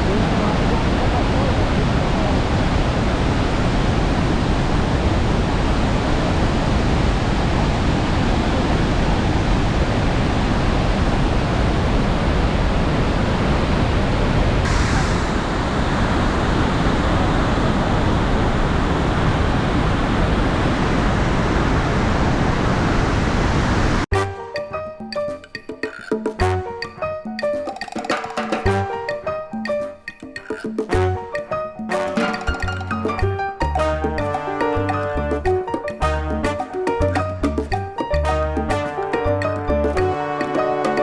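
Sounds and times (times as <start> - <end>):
waterfall rushing: 14.6 - 24.0.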